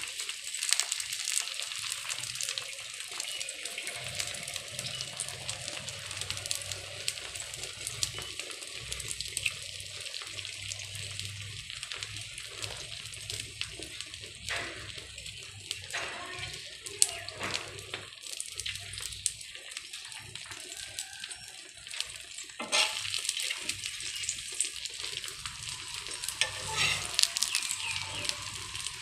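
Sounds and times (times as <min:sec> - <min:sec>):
omelette sizzling in a pan: 0:00.0 - 0:29.0
metal spoon scraping a pan: 0:22.6 - 0:23.8, 0:26.0 - 0:29.0.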